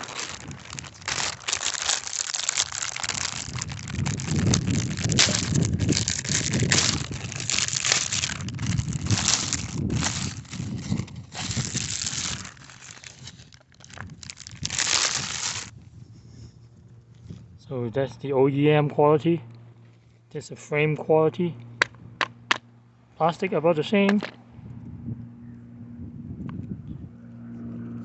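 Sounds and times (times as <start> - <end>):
packaging crinkling: 0.0 - 15.7.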